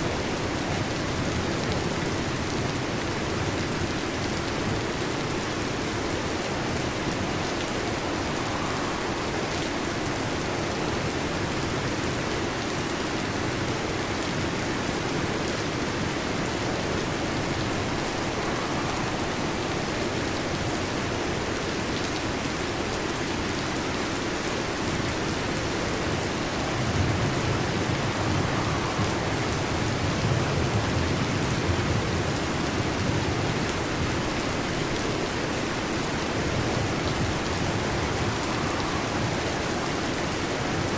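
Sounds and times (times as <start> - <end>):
heavy rain on metal roof: 0.0 - 40.9
thunder rumble: 4.7 - 12.0, 14.0 - 21.9, 24.6 - 40.9.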